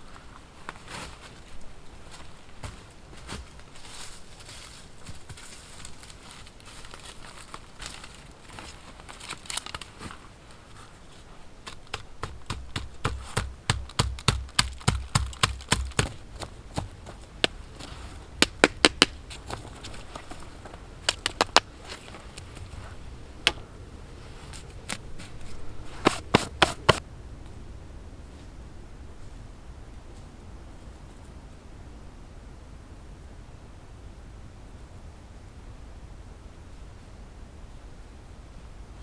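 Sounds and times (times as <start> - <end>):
sharp knocks with dull thuds: 11.7 - 19.6, 21.1 - 22.0, 26.0 - 27.0.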